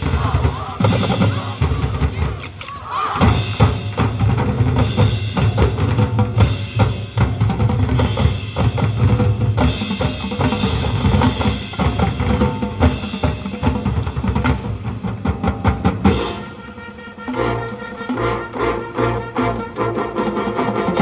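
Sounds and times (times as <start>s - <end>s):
bass drums and snares: 0.0s - 16.7s
brass chords: 15.9s - 21.0s.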